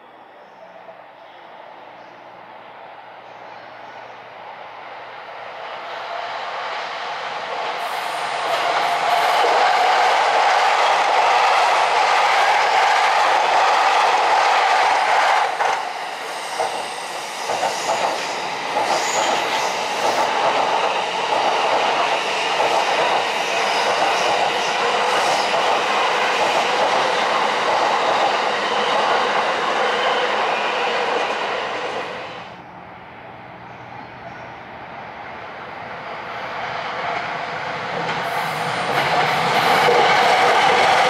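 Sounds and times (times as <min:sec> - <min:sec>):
train wheels clacking over rail joints: 0:37.9 - 0:41.0.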